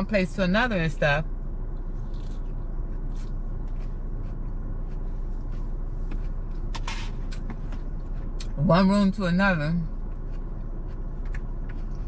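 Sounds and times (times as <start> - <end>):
car idling rumble: 0.0 - 12.0
chewing clicks: 10.1 - 12.0.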